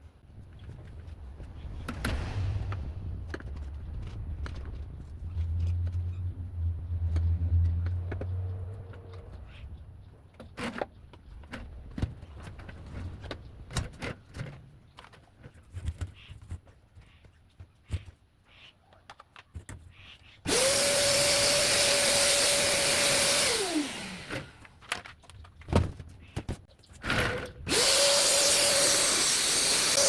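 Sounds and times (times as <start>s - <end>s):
low rumble: 0.5s - 8.6s.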